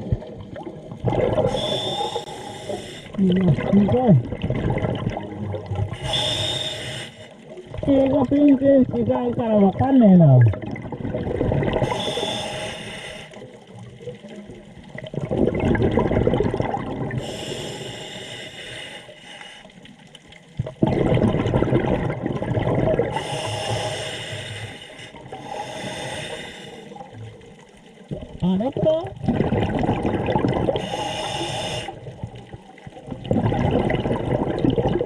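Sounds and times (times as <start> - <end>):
exhaled bubbles gurgling: 0.0 - 35.0
regulator breathing hiss: 1.5 - 3.2, 6.0 - 7.4, 11.9 - 13.4, 17.2 - 19.8, 23.2 - 26.9, 30.8 - 32.0.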